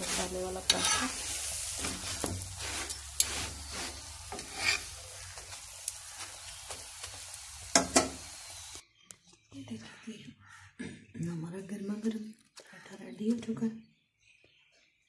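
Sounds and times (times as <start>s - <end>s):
flatbread sizzling in a pan: 0.0s - 8.8s.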